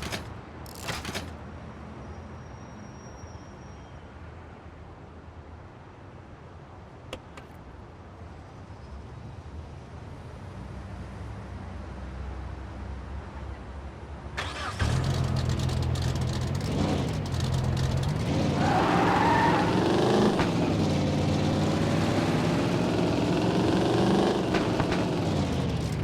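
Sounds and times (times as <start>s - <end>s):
car engine revving: 14.4s - 26.0s.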